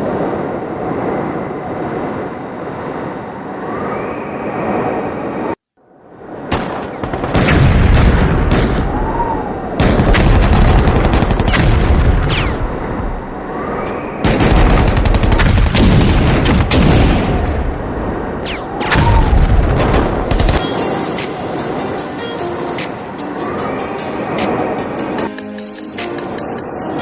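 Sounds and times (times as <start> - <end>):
dense gunfire: 6.5 - 8.9, 9.8 - 12.8, 14.2 - 17.8, 18.4 - 21.4
explosions: 6.5 - 9.2, 9.8 - 13.4, 14.2 - 22.0.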